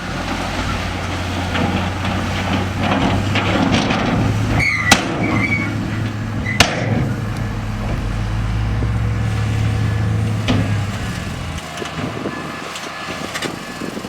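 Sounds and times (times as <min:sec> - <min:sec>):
diesel engine running: 0:00.0 - 0:14.0
sharp metallic bangs: 0:02.5 - 0:12.2
brief high squeal: 0:04.6 - 0:05.8.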